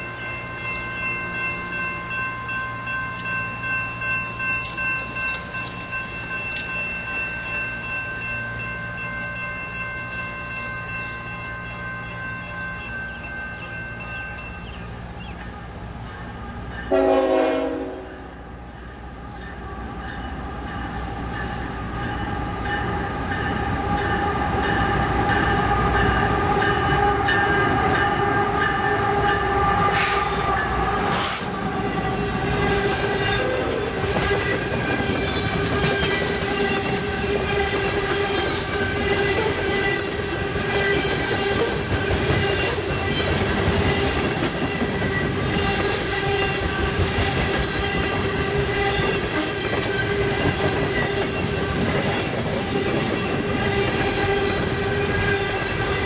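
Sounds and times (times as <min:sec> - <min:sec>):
freight train rumble: 0:00.0 - 0:56.0
train air horn: 0:16.9 - 0:18.4, 0:26.7 - 0:34.4, 0:47.8 - 0:50.6.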